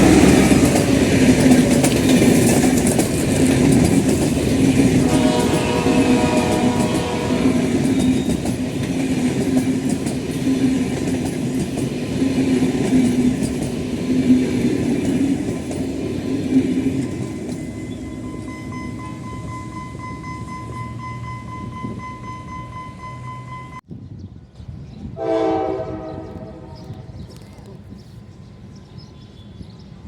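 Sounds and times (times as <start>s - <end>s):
train wheels rolling on rail: 0.0s - 23.8s
train horn blast: 4.8s - 8.4s, 25.2s - 27.2s.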